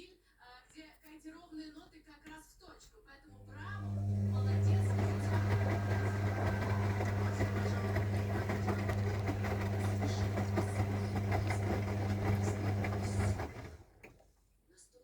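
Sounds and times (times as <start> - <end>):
washing machine humming: 3.3 - 14.2.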